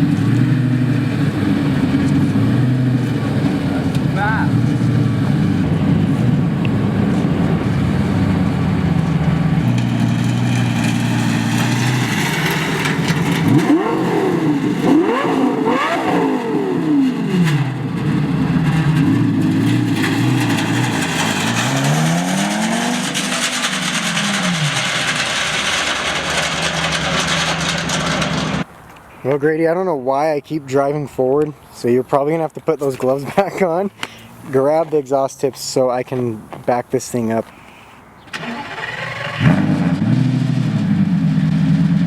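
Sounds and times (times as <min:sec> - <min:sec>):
sports car engine revving: 0:00.0 - 0:28.6, 0:38.6 - 0:42.0.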